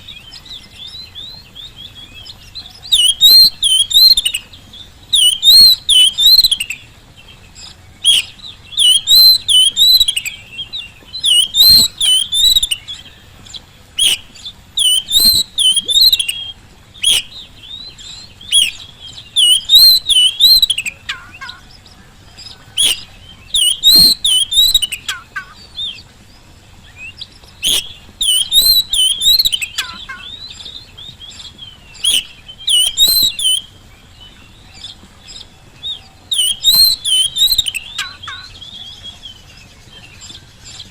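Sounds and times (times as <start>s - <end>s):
bird warbling song: 0.0s - 40.9s
sharp bird clicks: 14.0s - 16.4s, 17.0s - 17.4s.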